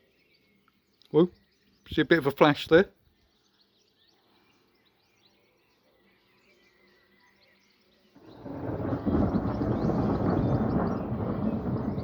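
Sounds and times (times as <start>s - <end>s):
faint birdsong chirping: 0.0s - 12.0s
thunder rumbling: 8.2s - 12.0s.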